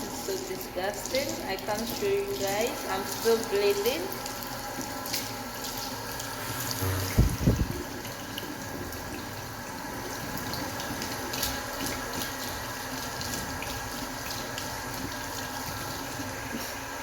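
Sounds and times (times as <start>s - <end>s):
tap water running into sink: 0.0s - 17.0s
dull low thumps: 6.8s - 7.8s.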